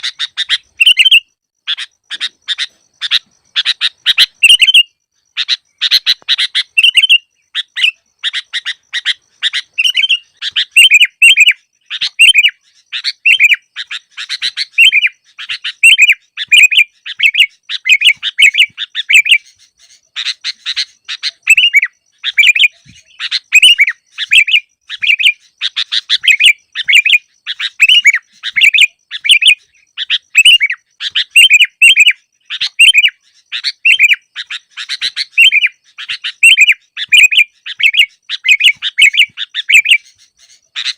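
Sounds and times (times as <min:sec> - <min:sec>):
bulbul chattering calls: 0:00.0 - 0:40.9.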